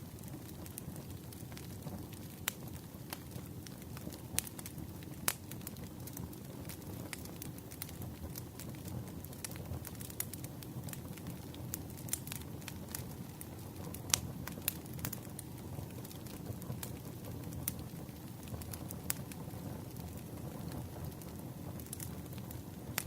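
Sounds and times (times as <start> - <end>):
burning wood crackling and popping: 0.0 - 23.0
campfire low rumble: 0.0 - 23.0.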